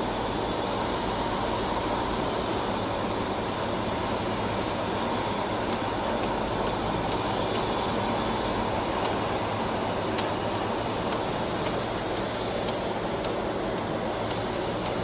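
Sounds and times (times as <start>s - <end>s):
jet engine rush with whine: 0.0s - 15.0s.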